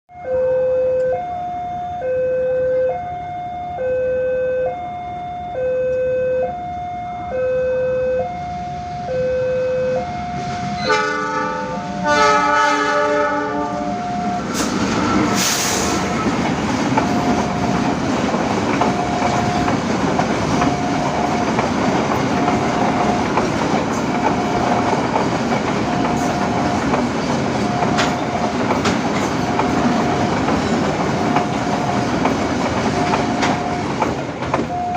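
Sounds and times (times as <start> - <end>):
electronic warning bell: 0.1 - 8.5, 9.1 - 10.9
freight train rumbling past: 8.2 - 34.9
locomotive horn: 9.1 - 16.4
train wheels clacking: 14.4 - 34.9.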